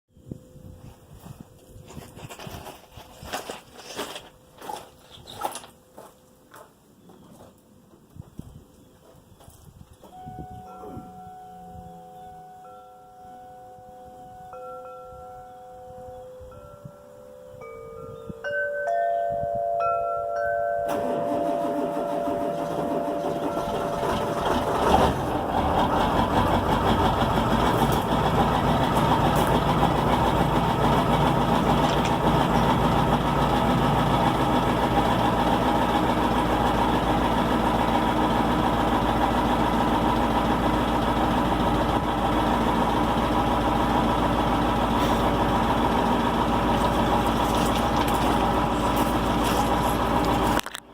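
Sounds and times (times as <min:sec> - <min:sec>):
diesel engine cranking and idling: 0:20.8 - 0:50.9.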